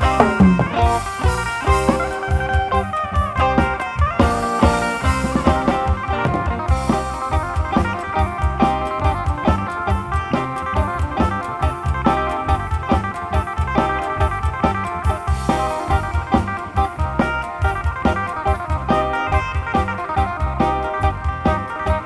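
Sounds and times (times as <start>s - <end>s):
amplified plucked lute melody: 0.0s - 16.8s
drum kit beat: 0.0s - 22.0s.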